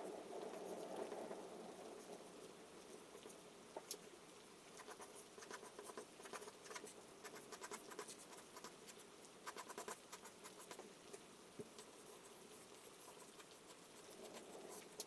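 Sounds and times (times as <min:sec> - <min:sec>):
soft hiss of rain: 0:00.0 - 0:15.0
charcoal scratching on paper: 0:04.8 - 0:10.9, 0:11.8 - 0:15.0.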